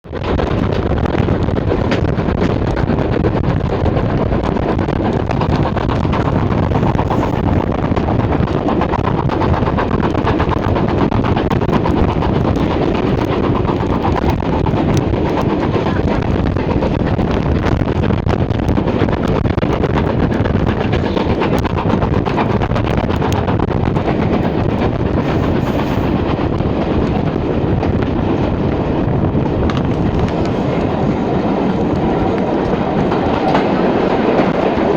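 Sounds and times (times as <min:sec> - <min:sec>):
steam locomotive running: 0:00.1 - 0:34.9.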